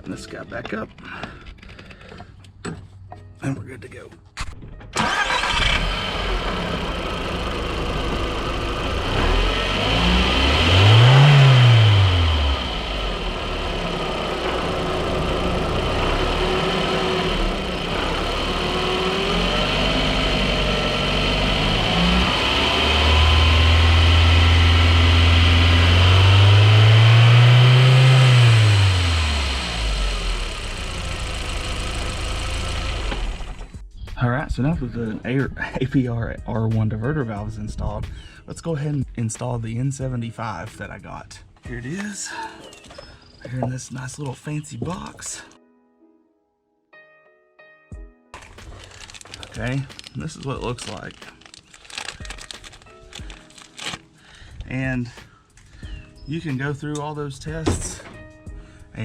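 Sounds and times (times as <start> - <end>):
car engine idling and revving: 5.0 - 33.8.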